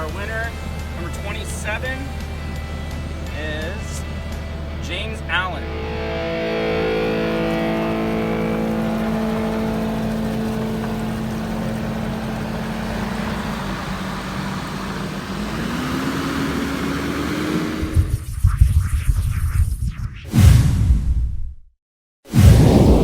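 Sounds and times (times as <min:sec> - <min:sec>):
engine running and revving: 0:02.0 - 0:18.2.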